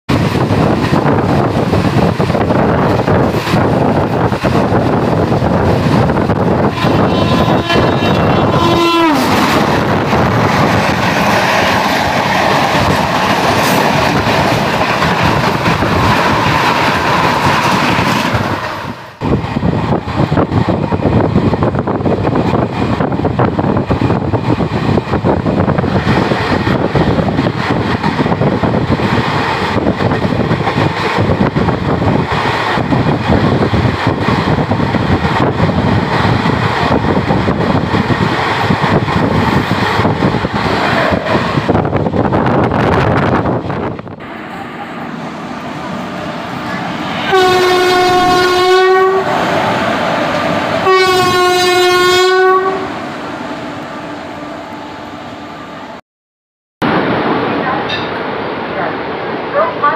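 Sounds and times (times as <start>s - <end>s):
train coaches passing close: 0.1s - 56.0s, 56.8s - 59.9s
train horn: 6.6s - 9.4s, 47.2s - 49.4s, 50.8s - 53.0s.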